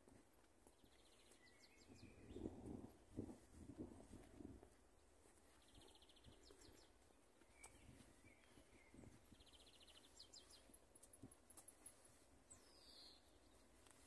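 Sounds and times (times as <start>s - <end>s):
small songbird singing: 0.8s - 2.7s, 5.5s - 14.0s.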